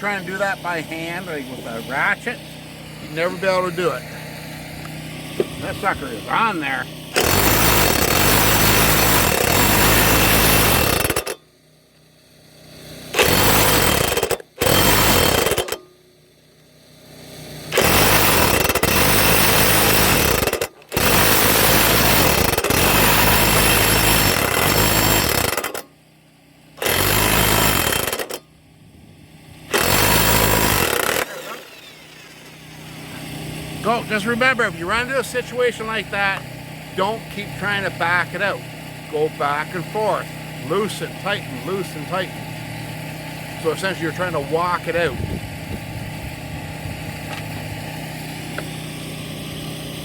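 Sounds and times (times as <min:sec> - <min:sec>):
impact wrench hammering: 0:05.4 - 0:05.6, 0:07.2 - 0:11.4, 0:13.1 - 0:16.0, 0:17.7 - 0:25.9, 0:26.8 - 0:28.4, 0:29.7 - 0:33.8.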